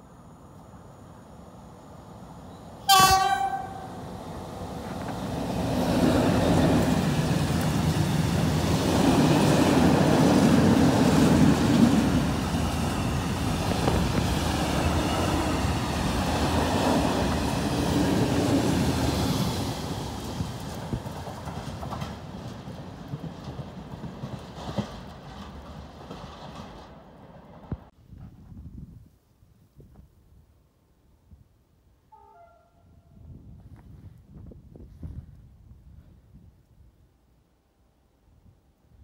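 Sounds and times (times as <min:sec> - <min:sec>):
passing train rumble: 0:00.0 - 0:27.9
train horn blast: 0:02.8 - 0:04.0, 0:32.1 - 0:33.1.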